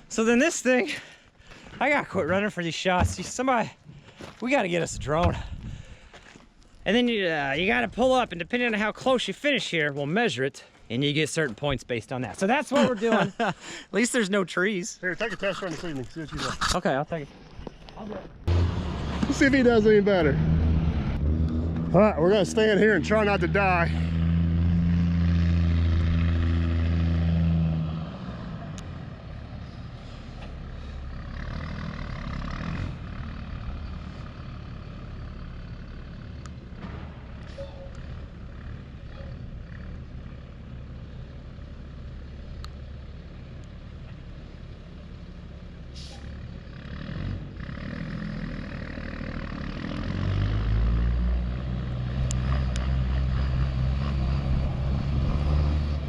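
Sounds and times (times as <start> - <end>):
dump truck diesel engine running: 28.6 - 46.8.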